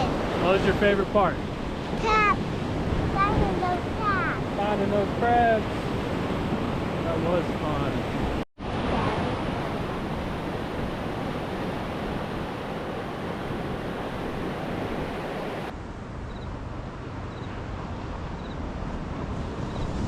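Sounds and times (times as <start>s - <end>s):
ocean surf breaking on beach: 0.0s - 15.8s
wind buffeting microphone: 0.0s - 20.0s.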